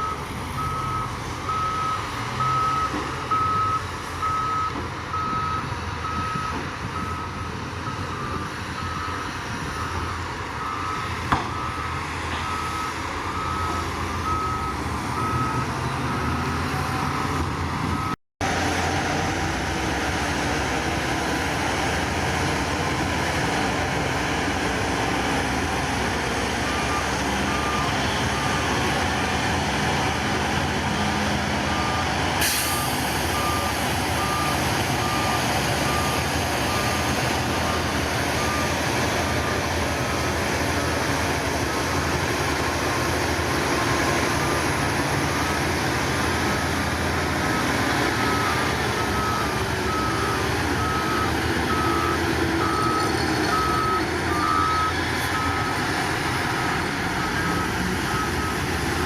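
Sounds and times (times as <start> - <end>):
reversing alarm beeping: 0.0 - 18.2, 26.6 - 29.4, 30.8 - 39.8, 47.4 - 55.9, 56.5 - 58.8
diesel engine running: 0.0 - 59.0.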